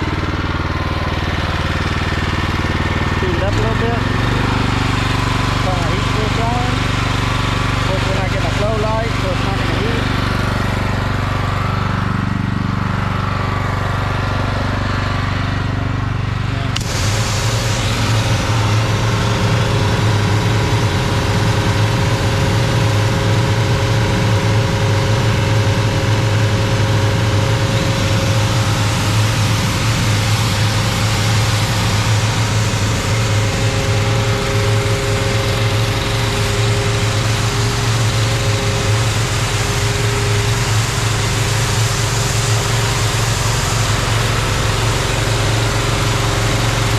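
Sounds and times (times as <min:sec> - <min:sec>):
pressure washer engine running: 0:00.0 - 0:46.9
loud spray hiss: 0:16.7 - 0:23.6, 0:27.3 - 0:46.9.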